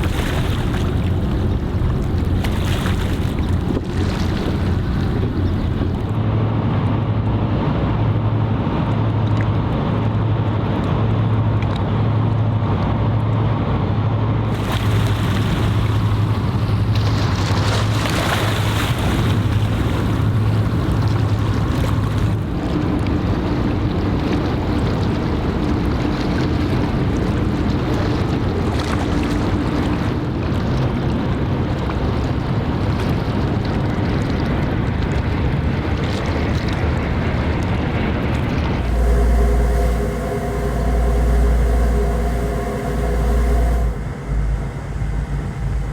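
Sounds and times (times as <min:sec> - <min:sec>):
higher steady hum: 0:00.0 - 0:06.4, 0:38.6 - 0:45.9
water noise: 0:00.0 - 0:06.5, 0:14.5 - 0:30.9, 0:38.4 - 0:45.9
boat engine humming: 0:00.0 - 0:06.6, 0:14.5 - 0:30.8, 0:38.4 - 0:45.9
wind: 0:00.0 - 0:45.9.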